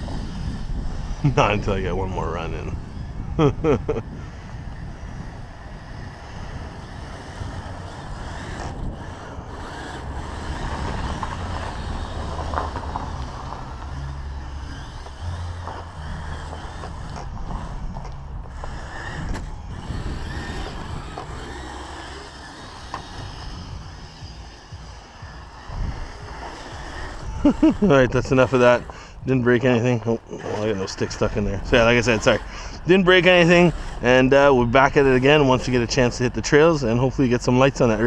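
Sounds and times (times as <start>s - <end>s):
electric motor and tracks running: 0.0s - 38.0s
wind rumbling on microphone: 0.0s - 38.0s.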